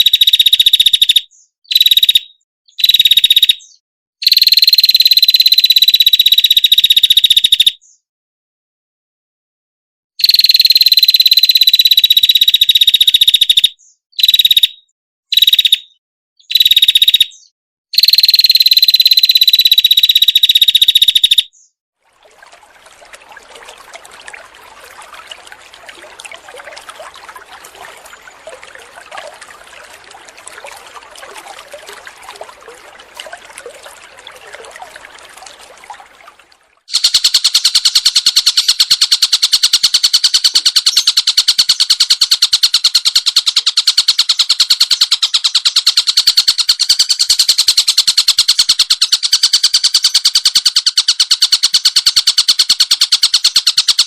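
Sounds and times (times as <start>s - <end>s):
bird high rapid trill: 16.5s - 21.4s, 22.3s - 38.8s.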